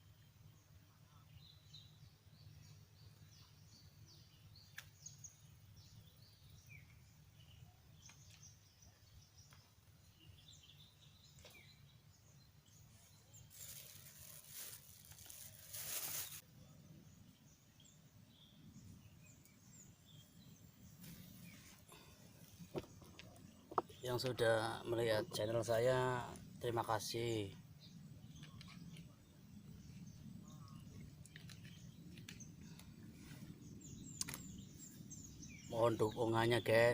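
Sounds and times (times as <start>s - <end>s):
faint birds chirping: 0.0s - 36.9s.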